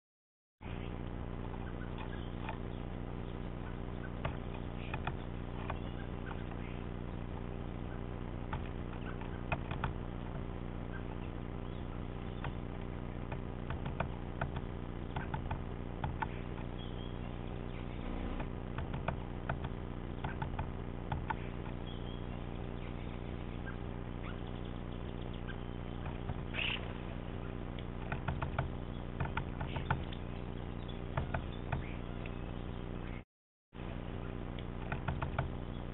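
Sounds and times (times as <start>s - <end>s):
high bird calls: 0.6s - 14.2s, 15.0s - 19.2s, 20.1s - 33.2s
steady low hum: 0.6s - 33.2s, 33.8s - 35.9s
woodpecker tapping on log: 4.1s - 6.6s, 8.5s - 10.4s, 13.3s - 16.7s, 18.4s - 21.8s, 27.8s - 30.2s, 31.1s - 32.0s, 34.8s - 35.6s.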